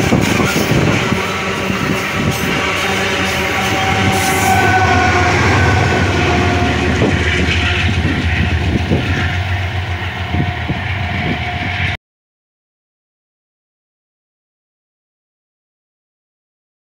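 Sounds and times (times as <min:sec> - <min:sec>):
steady whine: 0:00.0 - 0:12.0
steel wheels rumbling on rails: 0:00.0 - 0:12.0.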